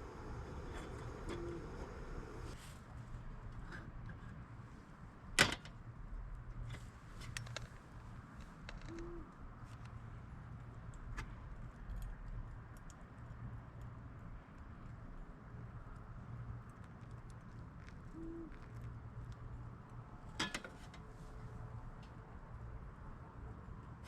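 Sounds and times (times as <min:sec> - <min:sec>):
low steady hum: 0:00.0 - 0:08.2
light clicks and taps: 0:09.7 - 0:18.0.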